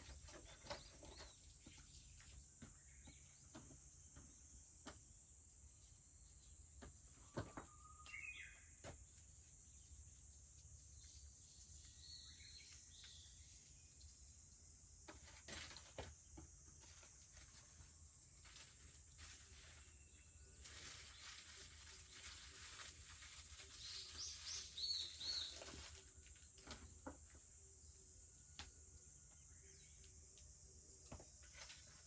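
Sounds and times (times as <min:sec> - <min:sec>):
bird singing: 0:00.0 - 0:04.6, 0:06.2 - 0:10.2, 0:10.8 - 0:14.5, 0:23.5 - 0:31.5
cicadas droning: 0:00.0 - 0:32.0.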